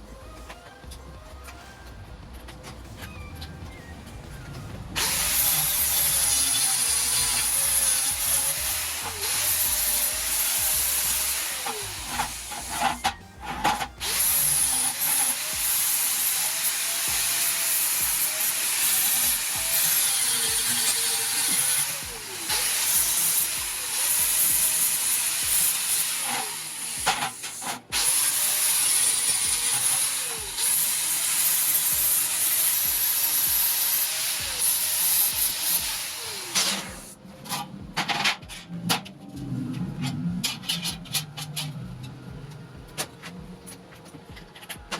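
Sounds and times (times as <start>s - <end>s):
power grinder grinding steel: 4.9s - 38.5s.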